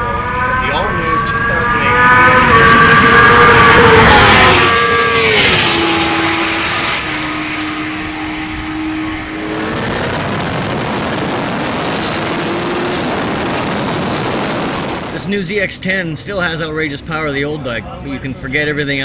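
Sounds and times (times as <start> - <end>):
motorcycle engine at speed: 0.0 - 15.2
wind noise: 8.6 - 15.4.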